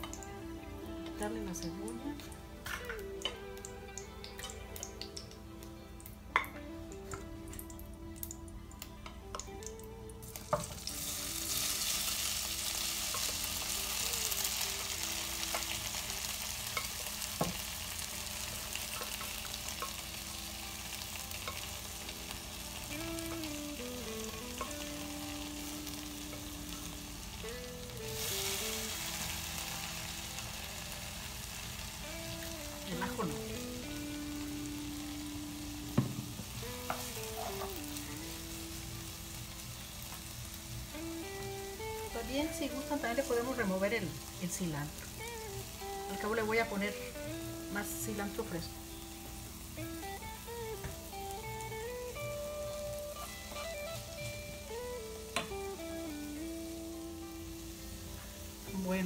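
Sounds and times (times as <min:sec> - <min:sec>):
food sizzling in hot oil: 0:00.0 - 0:59.0.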